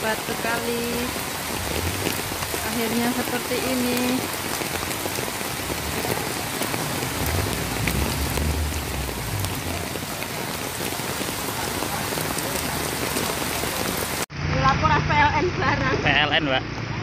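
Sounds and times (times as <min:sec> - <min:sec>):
heavy rain pouring: 0:00.0 - 0:14.6
low rumble: 0:05.7 - 0:10.3.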